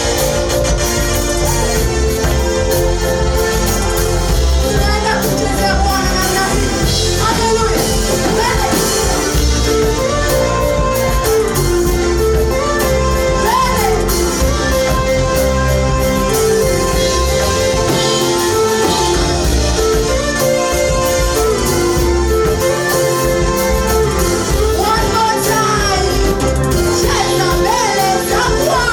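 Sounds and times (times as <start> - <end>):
praise band playing live: 0.0 - 28.9
people singing: 2.4 - 10.3, 24.6 - 28.9.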